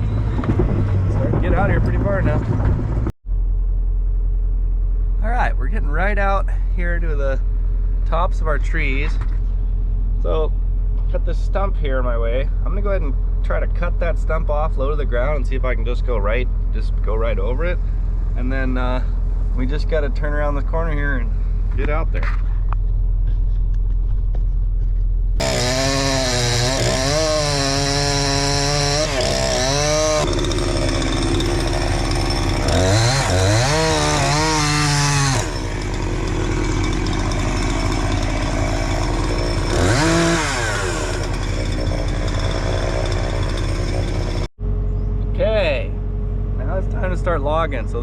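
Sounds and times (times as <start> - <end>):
chainsaw cutting wood: 25.4 - 44.5.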